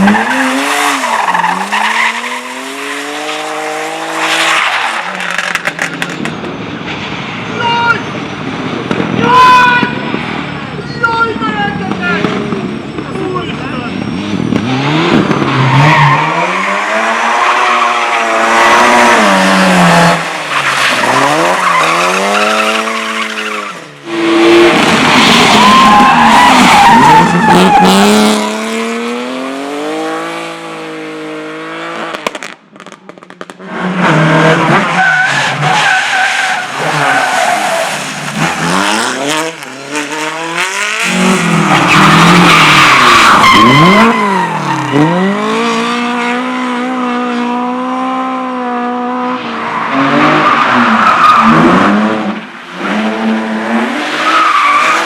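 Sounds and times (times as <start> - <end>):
race car engine revving: 13.9 - 32.6, 33.6 - 55.0
tyres squealing: 41.1 - 45.3.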